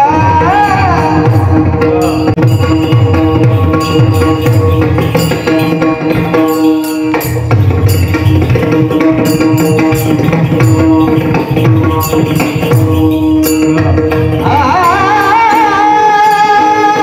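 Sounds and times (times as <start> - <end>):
person singing: 0.0 - 7.3, 14.4 - 17.0
drum playing fast rhythm: 0.0 - 17.0
hand cymbals clashing: 0.6 - 17.0.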